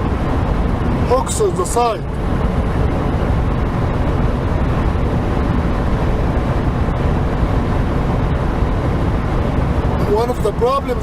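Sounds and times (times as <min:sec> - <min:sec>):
truck engine and road noise: 0:00.0 - 0:11.0.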